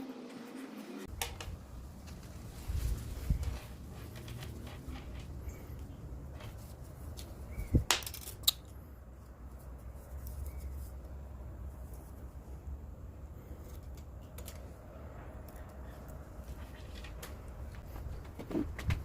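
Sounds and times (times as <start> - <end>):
hand tools and metal parts clicking: 3.2 - 8.8, 13.5 - 18.3.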